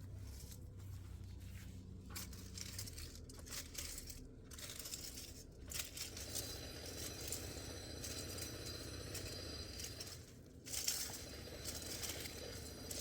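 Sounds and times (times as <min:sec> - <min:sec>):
rustling crinkling noise: 0:00.0 - 0:07.3.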